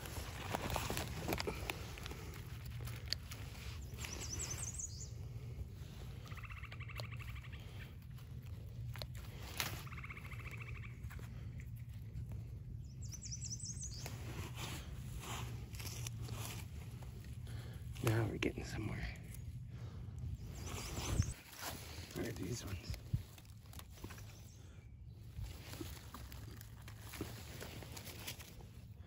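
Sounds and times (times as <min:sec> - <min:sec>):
leaves rustling: 0:00.0 - 0:29.0
songbirds singing: 0:00.0 - 0:29.0
steady low rumble: 0:00.0 - 0:29.0
buzzy bird trill: 0:09.8 - 0:11.0.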